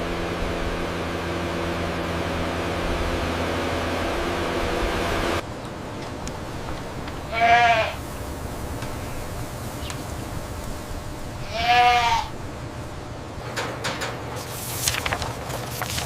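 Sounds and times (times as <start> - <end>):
low background hum: 0.0 - 16.0
goat bleating: 7.3 - 8.0, 11.4 - 12.4.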